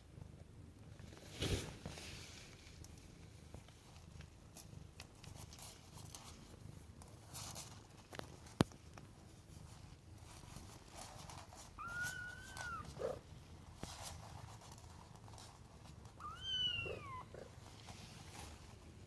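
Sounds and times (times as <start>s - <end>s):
kitten mewing: 16.2s - 17.5s.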